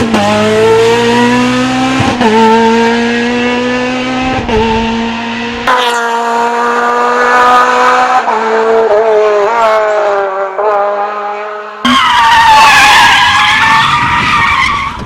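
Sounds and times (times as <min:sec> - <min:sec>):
rally car engine at high revs: 0:00.0 - 0:12.6
car passing at speed: 0:00.2 - 0:11.9.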